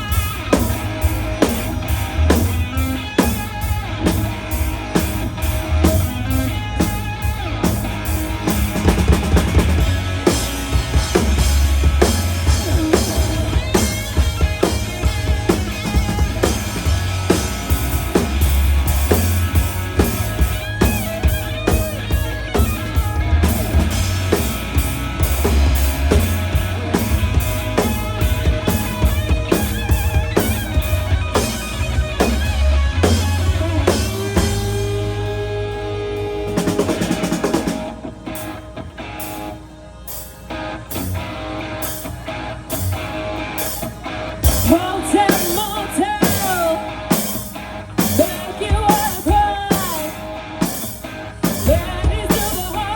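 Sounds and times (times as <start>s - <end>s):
drum kit beat: 0.0s - 39.5s, 43.6s - 52.9s
rock guitar: 0.0s - 52.9s.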